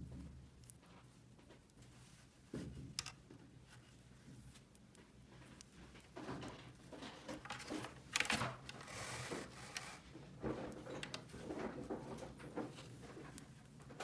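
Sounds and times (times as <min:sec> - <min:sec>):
clicks and taps of small objects: 0:02.6 - 0:03.3.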